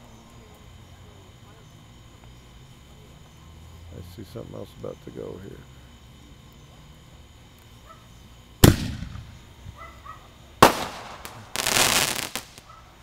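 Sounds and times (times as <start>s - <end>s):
firework bangs: 8.6s - 9.8s, 10.6s - 12.8s
firework crackling: 8.6s - 9.8s, 10.5s - 13.0s.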